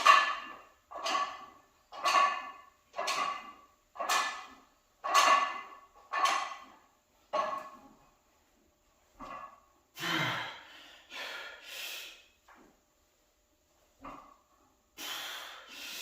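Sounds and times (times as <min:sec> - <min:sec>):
man exhaling and grunting: 0:10.0 - 0:12.2.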